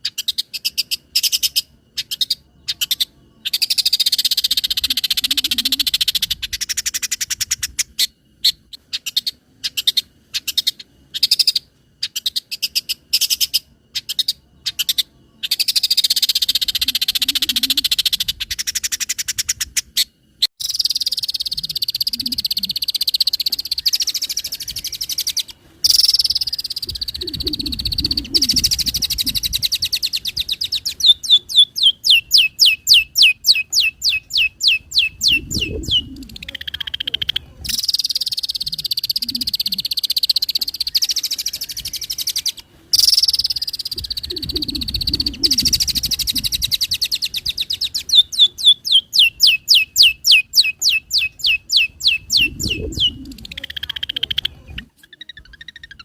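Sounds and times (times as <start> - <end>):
low croaking bird notes: 0.0 - 56.0
bird call notes: 20.6 - 54.5.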